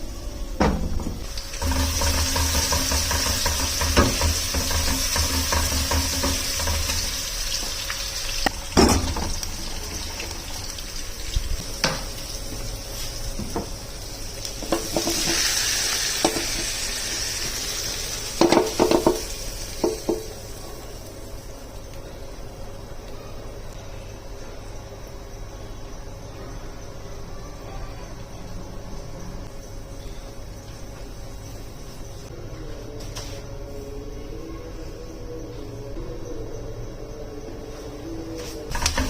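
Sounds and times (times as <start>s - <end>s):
food sizzling in a frying pan: 1.2s - 21.8s, 38.4s - 39.0s
utensil knocking against pan: 1.6s - 7.2s, 18.4s - 20.3s.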